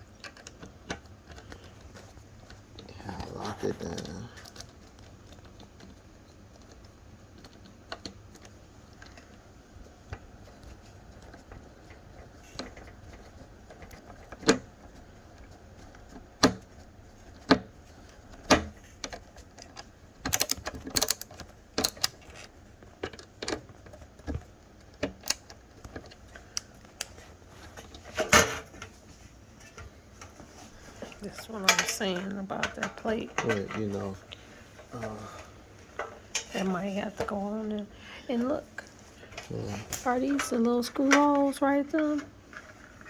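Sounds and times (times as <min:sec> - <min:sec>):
screwdriver and metal fittings clicking: 0:20.3 - 0:22.4.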